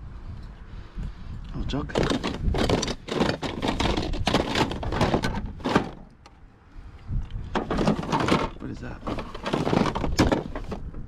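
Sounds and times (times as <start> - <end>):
objects knocking and clunking: 1.8 - 6.4, 7.2 - 11.0.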